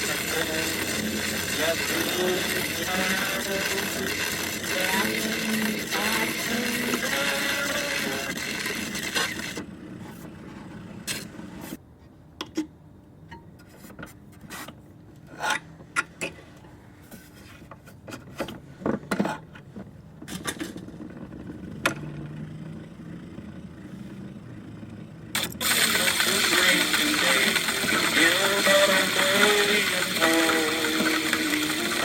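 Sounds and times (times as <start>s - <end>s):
clicks taps and rasping scrapes: 0.0s - 11.3s.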